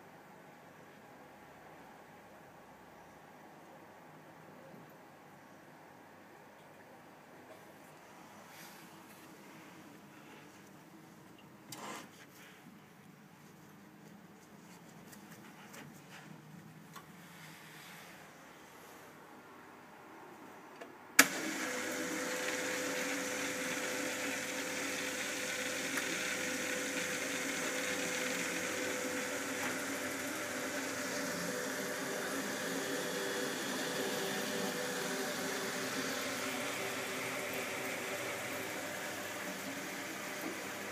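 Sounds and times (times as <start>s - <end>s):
boiler humming: 21.2s - 40.9s
water hissing through pipes: 21.2s - 40.9s.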